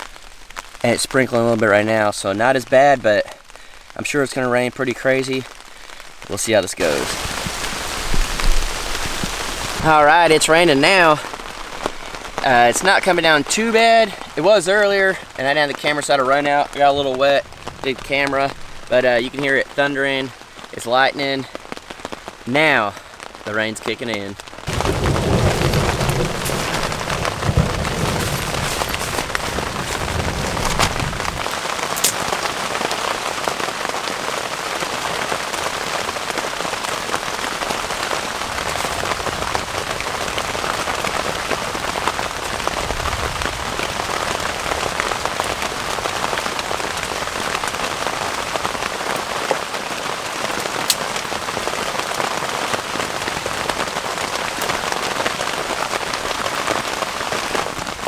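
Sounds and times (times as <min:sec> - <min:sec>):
heavy rain falling: 0:00.0 - 0:58.0
low roll of thunder: 0:24.6 - 0:31.9.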